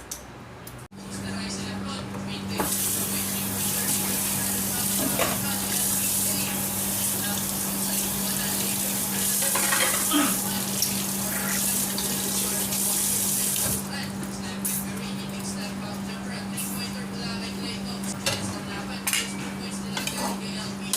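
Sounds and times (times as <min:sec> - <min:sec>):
food sizzling in oil: 0:02.6 - 0:13.8.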